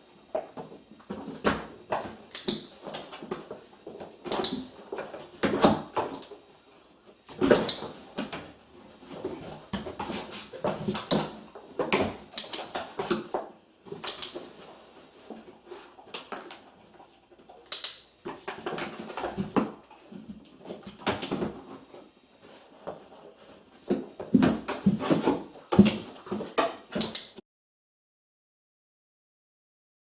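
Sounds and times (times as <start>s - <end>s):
dog paws scraping cardboard: 7.4s - 13.6s, 18.3s - 26.6s
training clicker clicks: 14.0s - 14.6s, 17.7s - 18.2s.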